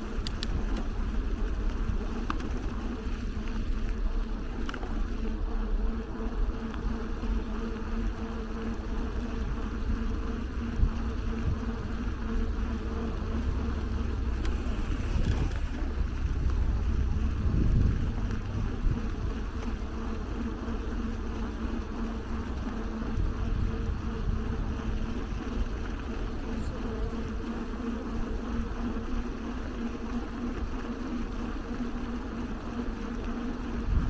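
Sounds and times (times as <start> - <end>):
engine hum droning: 0.0 - 34.0
faint clicks: 0.2 - 0.9, 14.3 - 15.8
street traffic rumble: 12.2 - 21.0.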